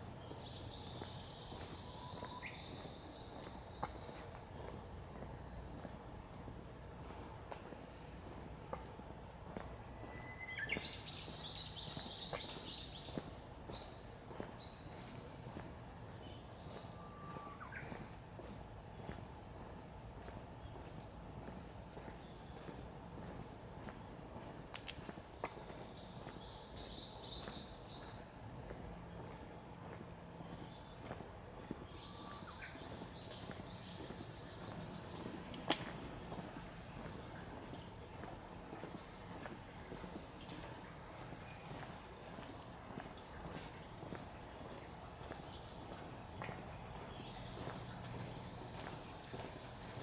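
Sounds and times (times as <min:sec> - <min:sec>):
low steady outdoor background: 0:00.0 - 0:50.0
faint footstep clicks: 0:00.3 - 0:50.0
songbird whistling notes: 0:10.0 - 0:12.5.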